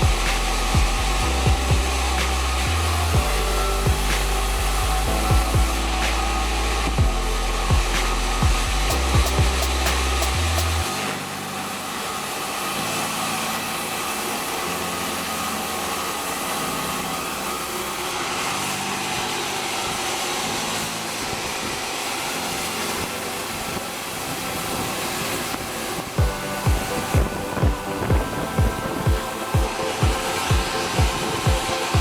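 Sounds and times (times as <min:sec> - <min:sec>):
sawmill saw running: 0:00.0 - 0:32.0.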